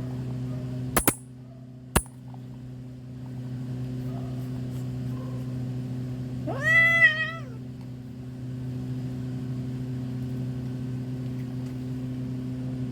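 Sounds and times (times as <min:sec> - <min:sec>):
steady low hum: 0:00.0 - 0:06.6
cat meowing: 0:06.4 - 0:07.6.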